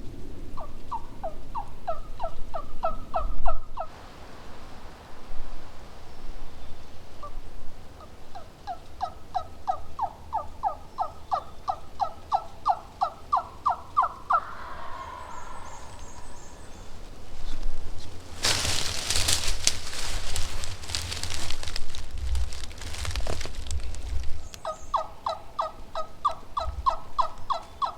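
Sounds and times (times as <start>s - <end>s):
turkey yelps: 8.3s - 17.0s, 24.6s - 27.9s.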